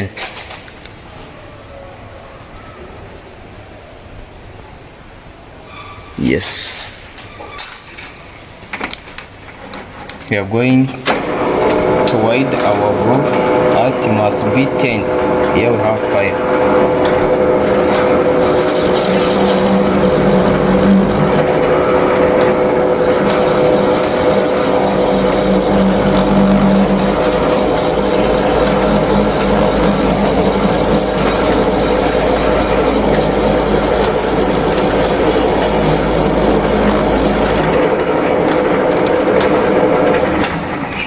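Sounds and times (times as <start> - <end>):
lathe low hum: 11.1 - 40.8
lathe whirring: 11.1 - 40.8.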